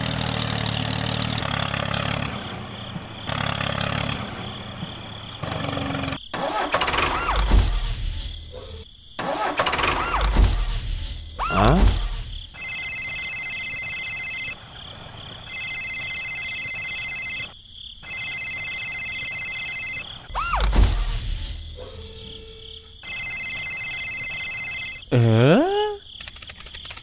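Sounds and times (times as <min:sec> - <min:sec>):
tractor engine revving: 0:00.0 - 0:12.6
high electronic ringing tone: 0:11.3 - 0:14.6, 0:15.5 - 0:25.1.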